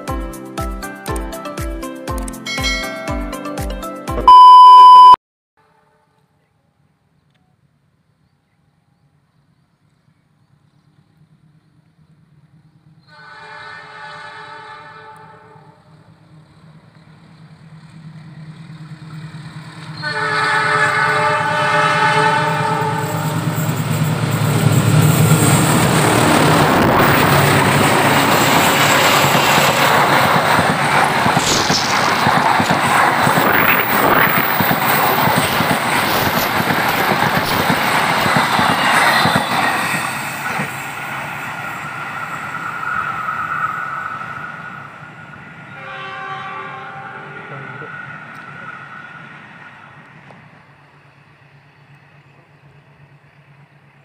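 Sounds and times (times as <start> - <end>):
train wheel and rail noise: 8.8 - 54.0
locomotive horn blasts: 13.1 - 15.8, 20.0 - 23.5, 45.7 - 47.7
locomotive engine rumble: 16.0 - 39.2.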